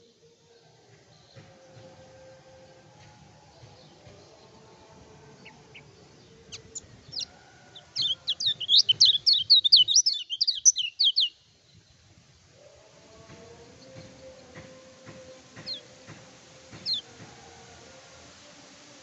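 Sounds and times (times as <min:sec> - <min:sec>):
bird chirping: 0:03.6 - 0:12.2, 0:13.5 - 0:17.2.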